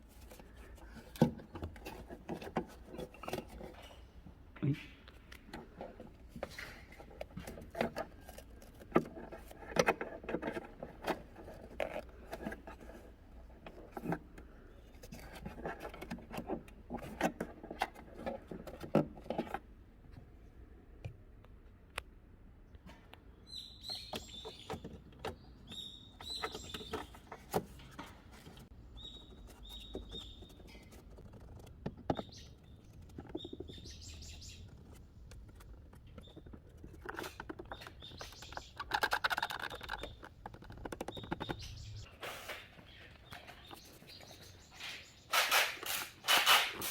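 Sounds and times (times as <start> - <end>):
bird chirping: 23.3 - 27.9, 28.7 - 45.5
small clicks and knocks: 29.4 - 42.1.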